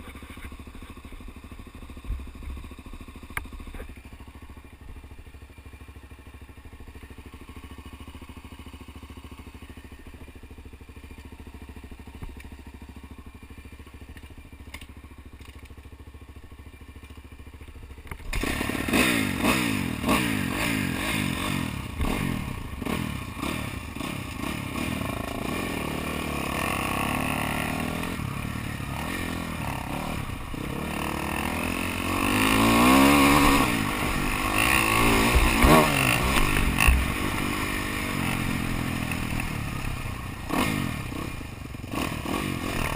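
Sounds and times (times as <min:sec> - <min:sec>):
motocross motorcycle engines revving: 0:18.1 - 0:42.9.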